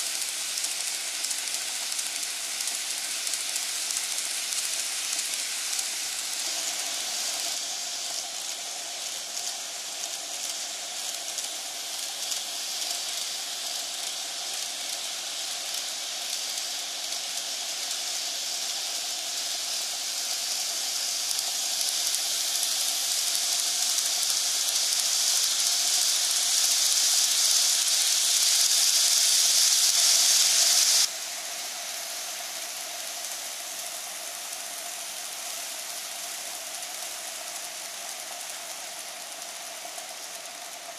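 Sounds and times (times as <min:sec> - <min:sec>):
model train running on track: 0:00.0 - 0:40.9.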